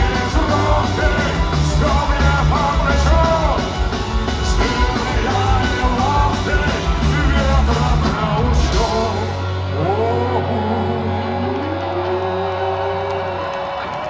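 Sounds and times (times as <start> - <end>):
punk rock band playing live: 0.0 - 10.8.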